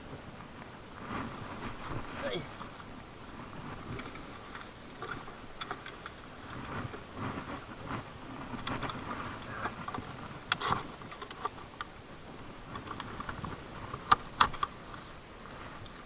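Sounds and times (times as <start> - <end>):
light clicks and taps: 12.7 - 15.1.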